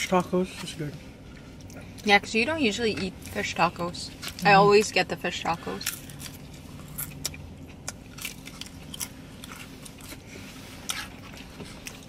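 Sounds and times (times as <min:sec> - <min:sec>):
low steady hum: 0:00.0 - 0:12.0
chewing and biting food: 0:05.7 - 0:12.0
sharp clicks and crunches: 0:05.8 - 0:10.2.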